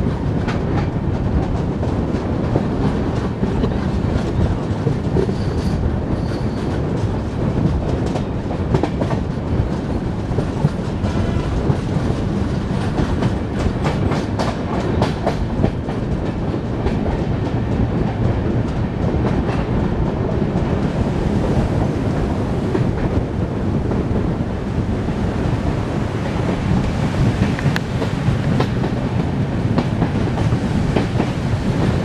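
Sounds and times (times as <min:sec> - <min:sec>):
train wheels rumbling on track: 0:00.0 - 0:32.0
wheels clacking over rail joints: 0:25.8 - 0:32.0.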